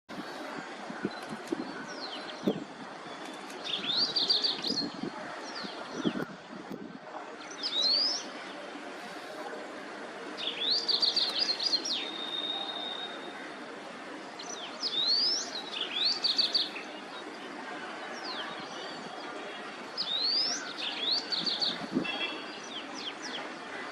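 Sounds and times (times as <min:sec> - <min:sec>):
wagtail singing: 0:00.1 - 0:06.4, 0:10.4 - 0:13.4.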